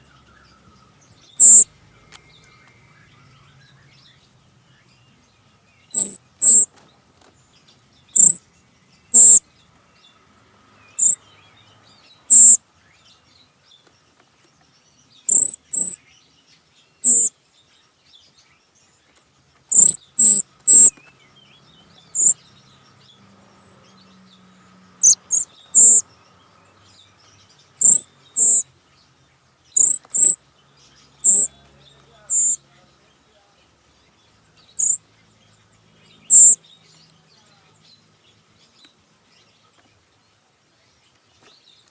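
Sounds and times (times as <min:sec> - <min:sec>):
bird sharp calls: 0:00.0 - 0:06.9, 0:07.6 - 0:09.6, 0:10.8 - 0:13.3, 0:15.0 - 0:17.4, 0:19.6 - 0:33.4, 0:34.0 - 0:37.8.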